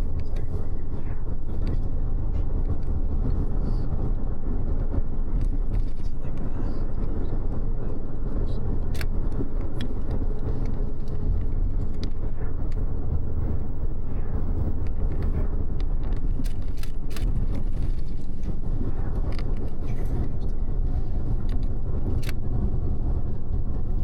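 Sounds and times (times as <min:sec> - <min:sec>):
bus engine rumble: 0:00.0 - 0:24.0
tyres on road: 0:00.0 - 0:24.0
light clicks and rattles: 0:14.8 - 0:22.5.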